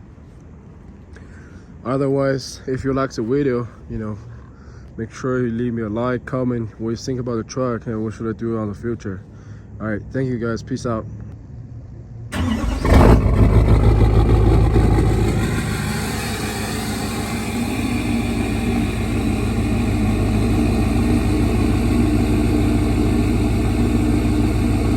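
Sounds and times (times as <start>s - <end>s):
diesel engine idling: 12.3s - 24.9s.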